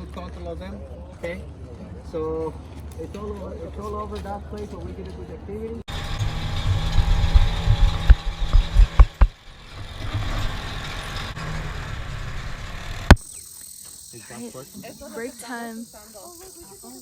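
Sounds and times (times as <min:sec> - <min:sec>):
off-road vehicle engine rumbling: 0:04.8 - 0:13.6
sharp knocks: 0:06.2 - 0:09.4.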